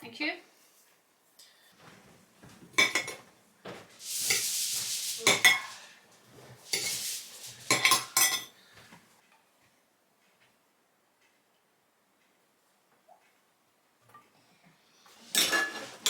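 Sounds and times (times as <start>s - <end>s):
cutlery and dishes clinking: 2.7s - 3.3s, 4.0s - 6.0s, 6.6s - 8.6s, 15.2s - 16.0s.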